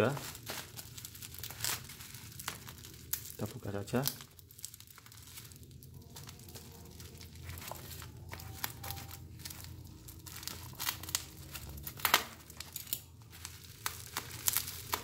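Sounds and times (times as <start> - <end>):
low steady hum: 0.0 - 15.0
wrapping crinkling and tearing: 0.0 - 15.0.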